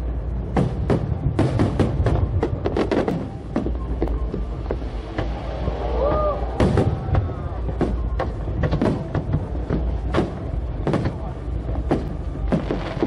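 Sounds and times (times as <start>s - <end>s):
low rumble of fireworks: 0.0s - 13.0s
fireworks bangs: 0.4s - 13.0s.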